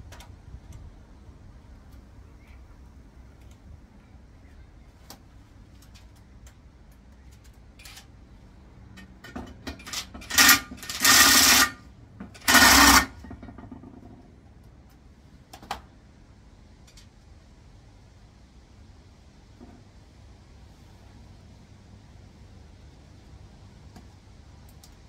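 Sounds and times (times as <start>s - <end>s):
metal parts and tools clicking: 7.3s - 8.1s, 9.0s - 11.8s, 12.4s - 13.2s.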